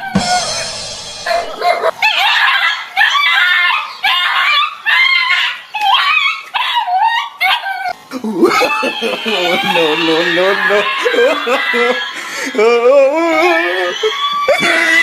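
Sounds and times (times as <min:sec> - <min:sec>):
dog barking and yelping: 0:00.0 - 0:12.5, 0:13.3 - 0:15.0.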